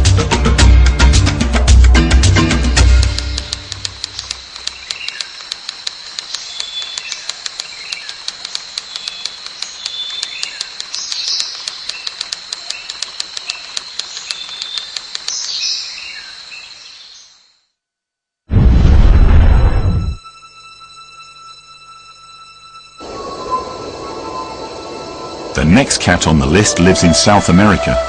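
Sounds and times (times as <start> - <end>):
fast even clicking: 2.8 - 15.6
high-pitched insect drone: 3.1 - 17.6, 20.2 - 28.0
bird chirps: 4.0 - 17.5.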